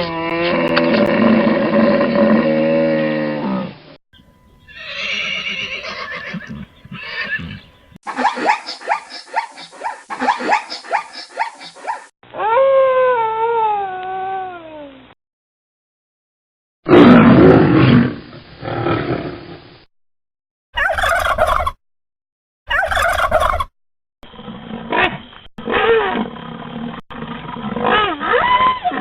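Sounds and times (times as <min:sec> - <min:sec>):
animal calls: 0:04.7 - 0:13.1, 0:20.8 - 0:21.8, 0:22.7 - 0:23.7.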